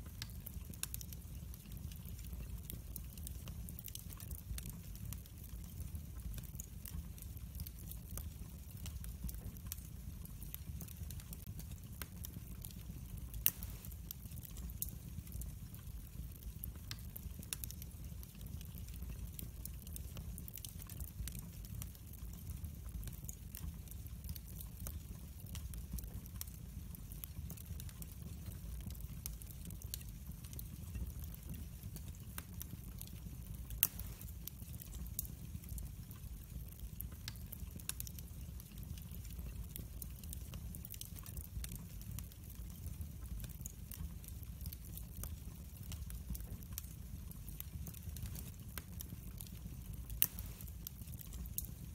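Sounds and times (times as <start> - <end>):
low rumble of flames: 0.0 - 51.9
wood fire crackling: 0.0 - 51.9.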